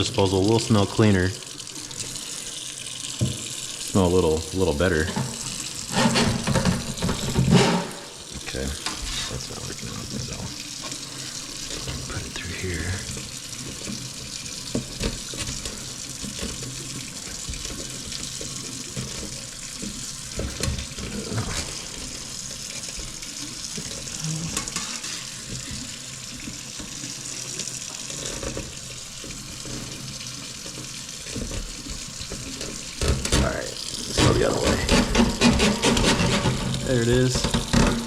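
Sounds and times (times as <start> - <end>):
tap water running into sink: 0.0 - 38.0
cleaning tool knocking and scraping: 4.8 - 9.4, 31.3 - 38.0.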